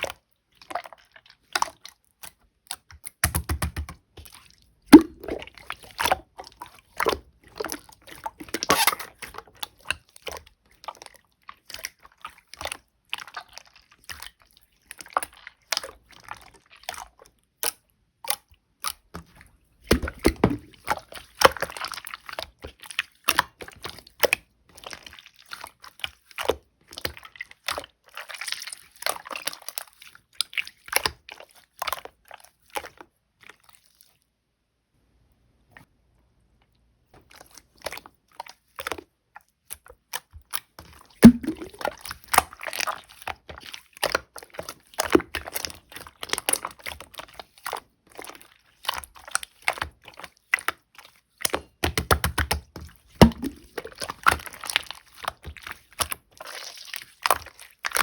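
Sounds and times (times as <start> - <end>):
slime squishing and popping: 2.8 - 4.0, 4.9 - 5.6, 41.2 - 43.1, 51.4 - 58.0.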